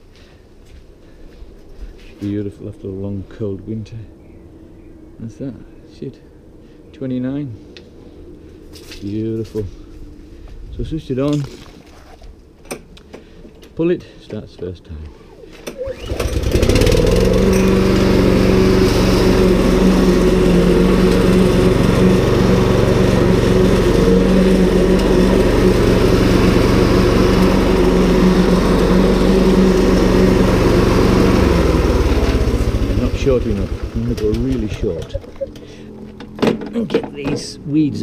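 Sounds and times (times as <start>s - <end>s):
lawn mower engine running: 15.2s - 37.4s.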